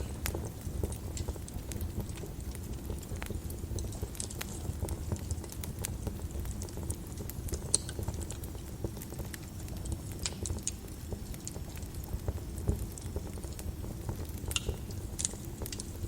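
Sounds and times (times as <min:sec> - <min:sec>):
sharp fire pops: 0:00.0 - 0:08.5, 0:12.6 - 0:16.0
low rumble of flames: 0:00.0 - 0:16.0
wood fire crackling: 0:00.0 - 0:16.0.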